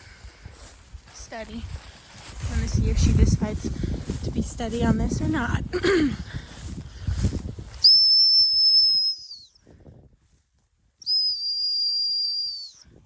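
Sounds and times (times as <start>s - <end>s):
training whistle blasts: 7.8s - 9.6s, 11.0s - 12.8s.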